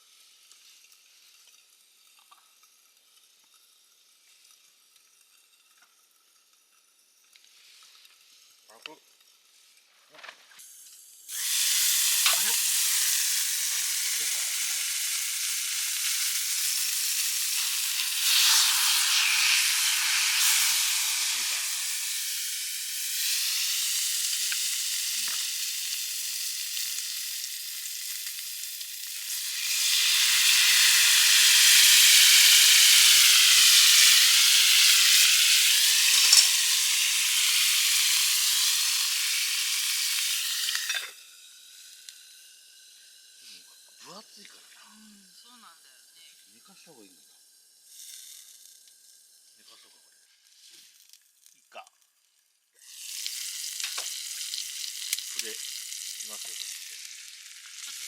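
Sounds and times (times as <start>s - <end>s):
beef sizzling: 0.0s - 58.0s
small pops: 12.2s - 12.6s.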